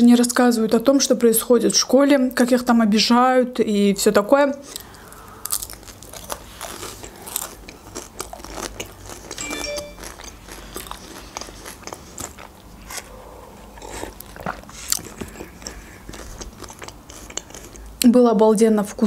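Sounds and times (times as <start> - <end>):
chewing crisp pastry: 4.6 - 18.1.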